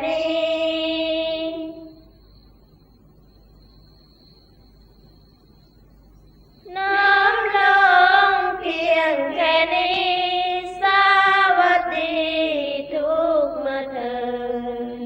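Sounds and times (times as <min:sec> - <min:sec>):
women chanting in unison: 0:00.0 - 0:02.0, 0:06.7 - 0:15.0.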